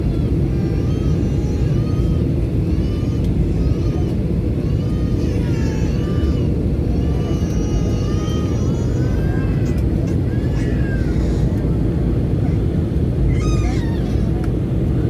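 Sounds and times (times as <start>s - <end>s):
airliner engine rumble: 0.0s - 15.0s
faint voices: 4.8s - 15.0s.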